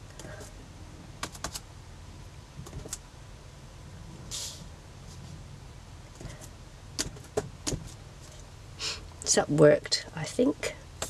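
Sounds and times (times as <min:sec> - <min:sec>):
short hiss: 0:04.3 - 0:04.7.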